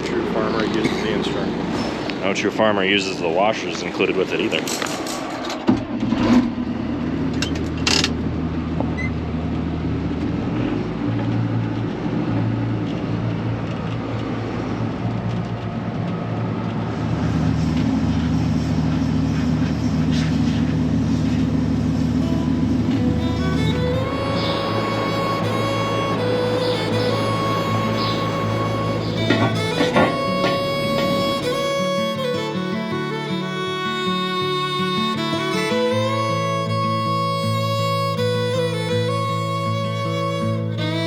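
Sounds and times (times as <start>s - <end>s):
engine running steadily: 0.0s - 41.0s
sharp metallic knocks: 29.0s - 31.5s.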